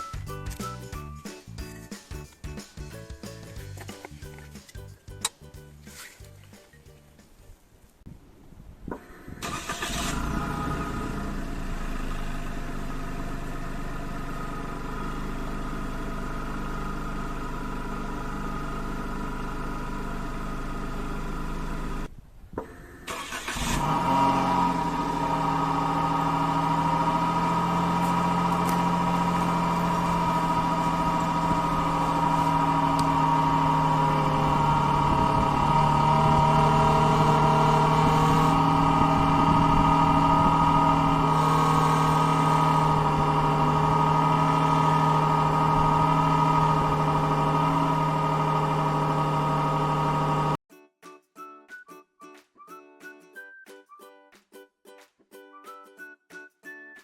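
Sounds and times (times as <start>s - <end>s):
car engine starting and idling: 8.9s - 50.6s.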